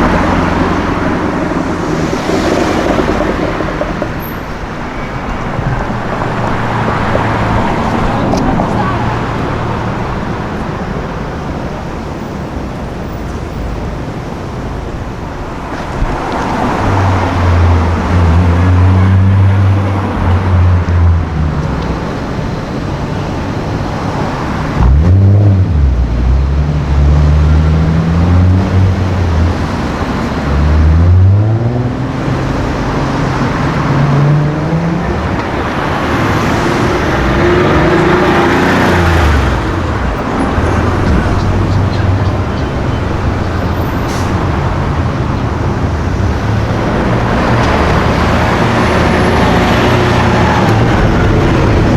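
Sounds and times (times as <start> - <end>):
car engine revving: 0.0 - 51.9
street traffic: 0.0 - 51.9.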